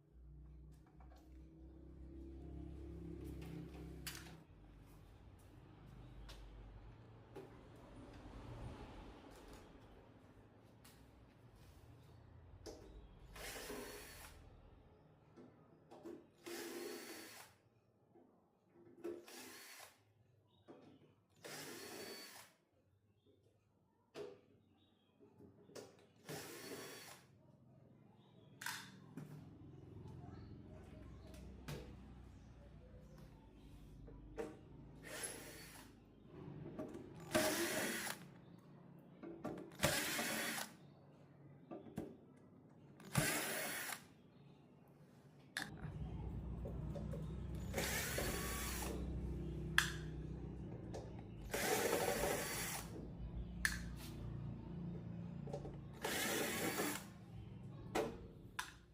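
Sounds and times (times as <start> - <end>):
handheld power tool running: 16.4 - 17.5, 19.3 - 19.9, 21.4 - 22.4, 26.3 - 27.2, 35.0 - 35.8, 37.2 - 38.2, 39.7 - 40.7, 43.0 - 44.0, 47.5 - 50.0, 51.4 - 53.0, 55.9 - 57.1.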